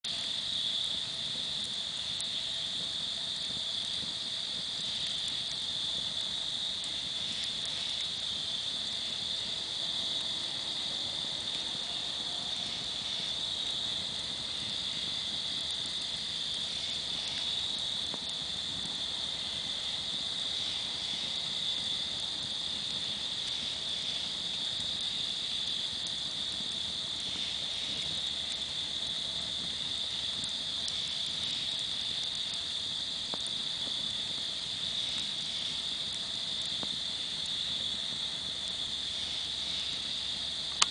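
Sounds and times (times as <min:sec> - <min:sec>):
campfire crackling: 0:00.0 - 0:40.9
crickets chirping: 0:00.1 - 0:40.9.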